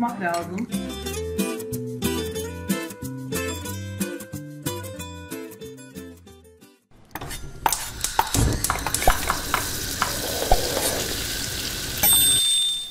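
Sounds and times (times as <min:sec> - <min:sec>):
oil crackling and clicking: 0:07.6 - 0:12.0
food sizzling in hot oil: 0:07.7 - 0:12.5.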